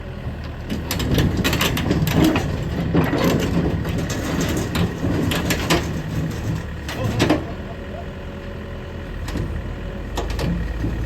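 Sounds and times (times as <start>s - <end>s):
excavator diesel engine running: 0.0s - 11.0s
metallic clanks and knocks: 0.7s - 7.6s.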